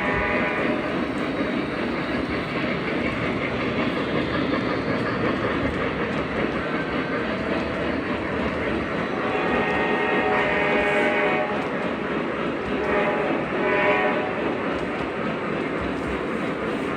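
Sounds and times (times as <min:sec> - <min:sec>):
model train wheels clattering on rail: 0:00.0 - 0:16.9.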